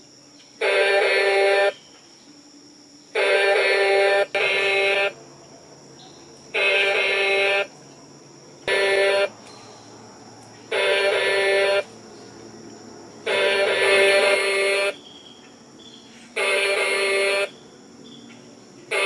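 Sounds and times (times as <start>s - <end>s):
toy truck electronic horn: 0.6s - 1.8s, 3.1s - 5.2s, 6.5s - 7.8s, 8.6s - 9.5s, 10.7s - 12.0s, 13.2s - 15.0s, 16.3s - 17.6s.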